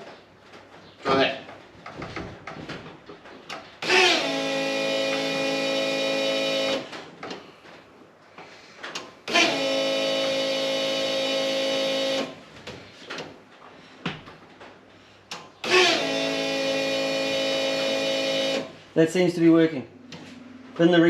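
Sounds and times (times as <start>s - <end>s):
electric fuel pump whining: 3.8s - 7.4s, 8.9s - 12.4s, 15.3s - 18.8s.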